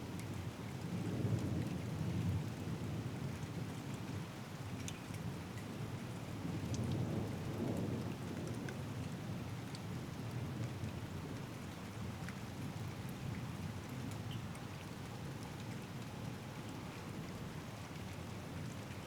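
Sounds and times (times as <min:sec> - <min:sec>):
steady rain falling: 0:00.0 - 0:19.0
rain drop ticks: 0:06.7 - 0:07.1, 0:08.4 - 0:10.8, 0:13.3 - 0:16.4.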